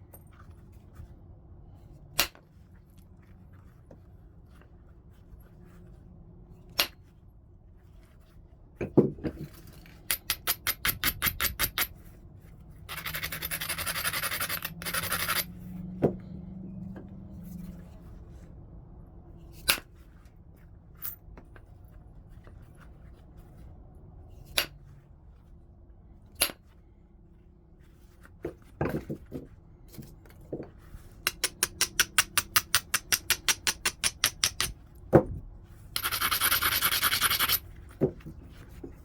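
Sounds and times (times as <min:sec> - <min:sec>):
stone grinding on abrader: 0:12.9 - 0:15.5, 0:36.0 - 0:37.6
stone scraping strokes: 0:12.9 - 0:15.5, 0:36.0 - 0:37.6.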